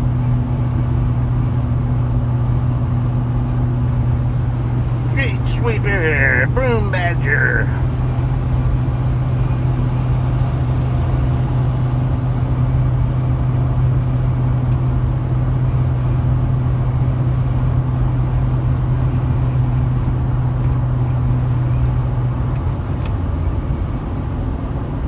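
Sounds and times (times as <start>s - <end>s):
truck engine drone: 4.2s - 8.1s.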